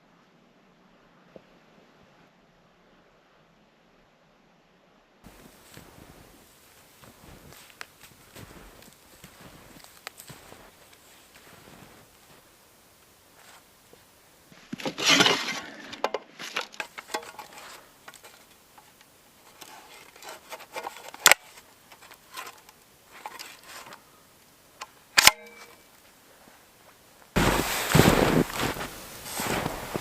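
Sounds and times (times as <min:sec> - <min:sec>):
rustling: 0:05.3 - 0:30.0
shovel parts snapping metallic clicks: 0:25.2 - 0:25.8.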